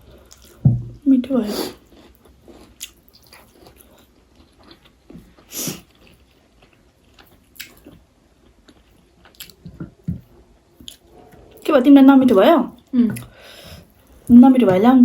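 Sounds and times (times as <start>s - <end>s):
person chewing food: 0.0s - 0.7s, 1.8s - 11.7s.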